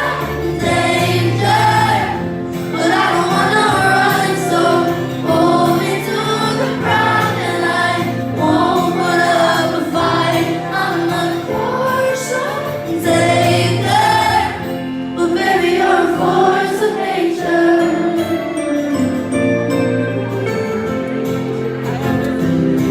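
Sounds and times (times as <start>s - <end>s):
other voices singing along: 0.0s - 19.2s
live pop band: 0.0s - 22.9s
woman singing: 2.7s - 14.5s.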